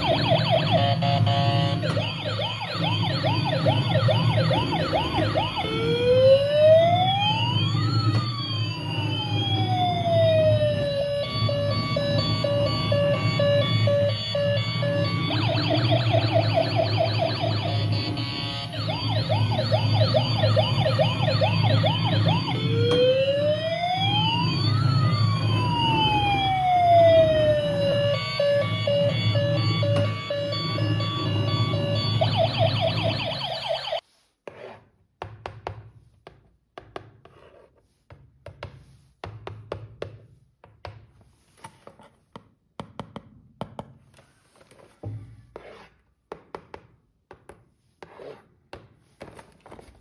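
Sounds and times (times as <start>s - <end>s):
toy electronic siren: 0.0s - 34.0s.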